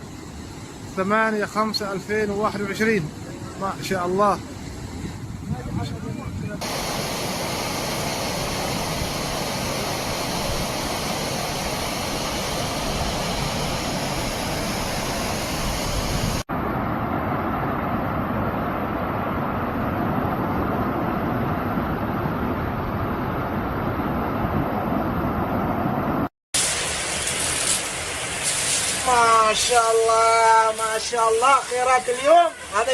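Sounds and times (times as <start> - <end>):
floodwater rushing: 6.6 - 17.2, 26.6 - 32.9.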